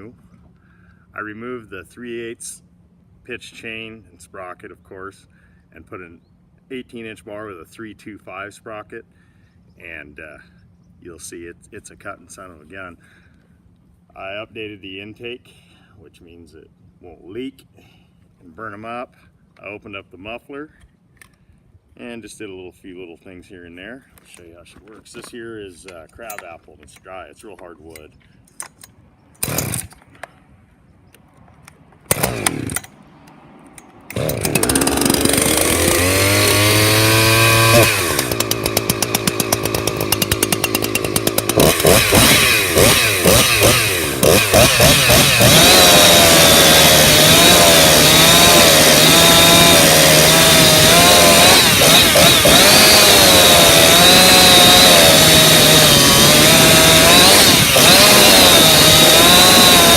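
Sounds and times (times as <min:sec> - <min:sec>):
chainsaw revving and cutting wood: 0:29.4 - 0:30.0, 0:32.1 - 0:33.0, 0:34.1 - 0:59.9.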